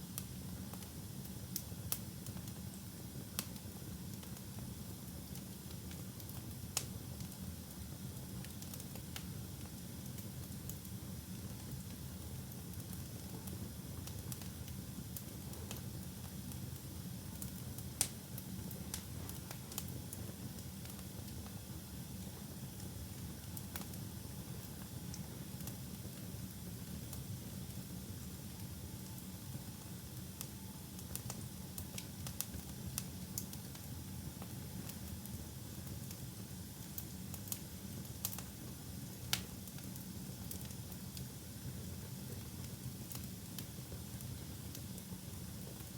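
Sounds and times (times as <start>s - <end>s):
fire crackling and popping: 5.3s - 21.7s, 23.1s - 27.6s, 30.4s - 33.8s, 34.4s - 45.9s.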